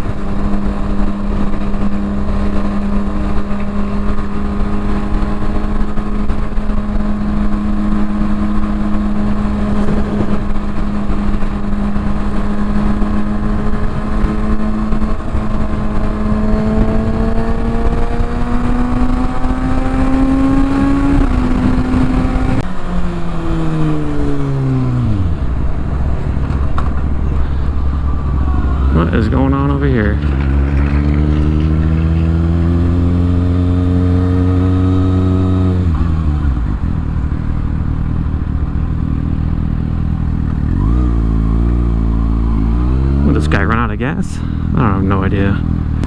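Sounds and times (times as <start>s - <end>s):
motorcycle engine: 0.0s - 46.0s
wind noise on microphone: 9.0s - 22.6s.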